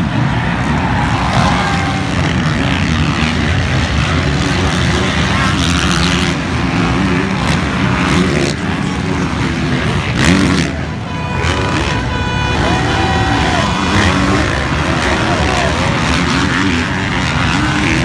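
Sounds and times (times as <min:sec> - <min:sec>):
motocross bike engines revving: 0:00.0 - 0:18.0
steady tones: 0:07.3 - 0:18.0.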